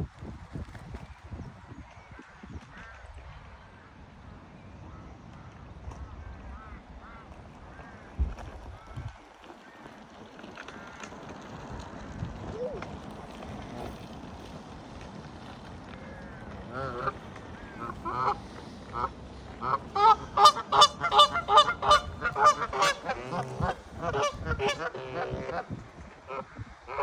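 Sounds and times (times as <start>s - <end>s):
geese honking: 16.0s - 27.0s.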